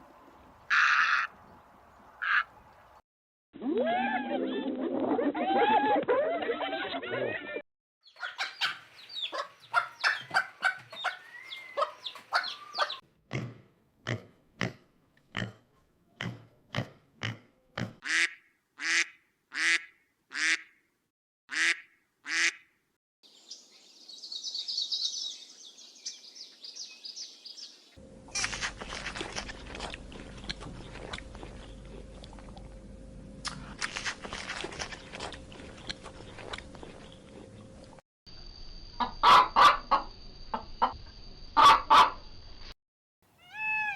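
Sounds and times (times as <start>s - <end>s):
domestic fowl calling: 0.7s - 1.3s, 2.2s - 2.5s, 8.1s - 13.0s, 39.0s - 41.0s, 41.6s - 42.2s.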